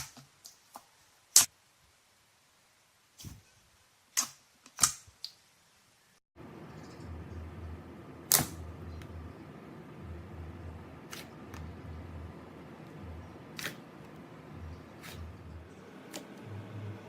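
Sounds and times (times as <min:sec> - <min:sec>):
low hum: 0:06.4 - 0:17.0.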